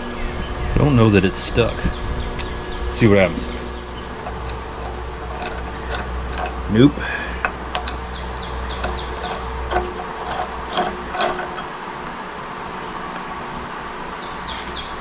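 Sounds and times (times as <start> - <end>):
metal rubbing and scraping: 3.4 - 12.3
light metal clinks: 4.2 - 6.7, 7.4 - 11.8.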